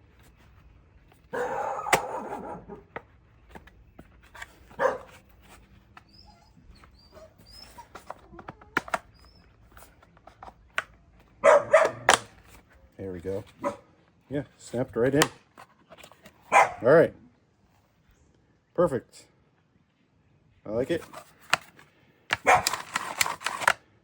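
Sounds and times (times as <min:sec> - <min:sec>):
dog barking: 0:01.3 - 0:02.9, 0:04.8 - 0:05.1, 0:11.4 - 0:12.1, 0:13.6 - 0:13.9, 0:16.5 - 0:16.9, 0:22.4 - 0:22.7.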